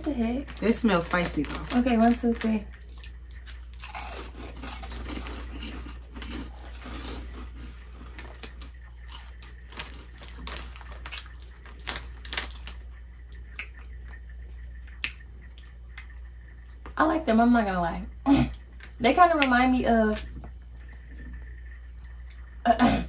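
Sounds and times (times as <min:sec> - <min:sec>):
people chewing crunchy chips: 0:00.4 - 0:16.9.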